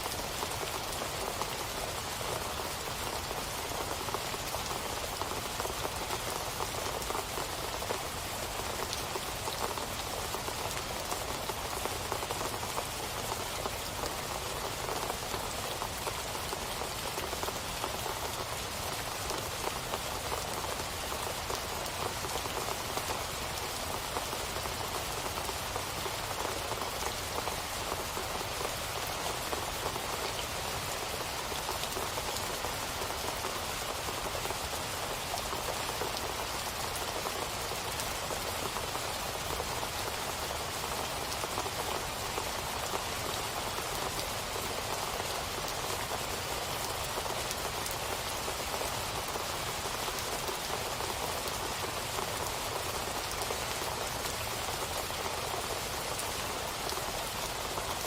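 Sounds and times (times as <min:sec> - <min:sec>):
rain pattering on a surface: 0:00.0 - 0:58.0.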